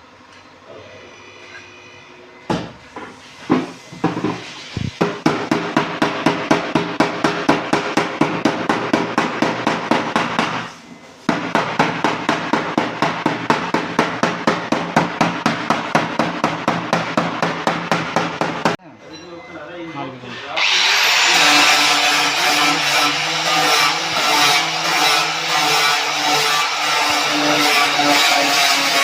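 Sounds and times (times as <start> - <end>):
hammer striking sheet metal: 4.0 - 18.8.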